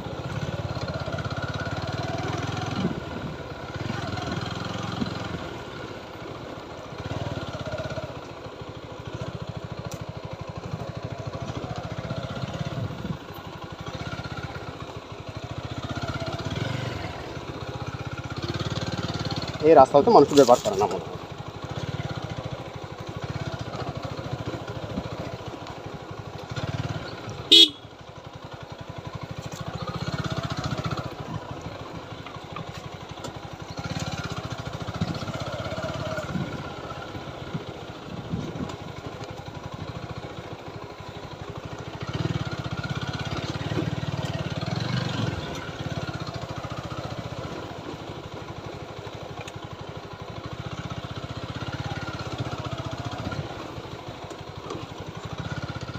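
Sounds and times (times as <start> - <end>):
motorcycle engine running: 0.0 - 55.9
motorcycle horn beep: 27.4 - 28.0.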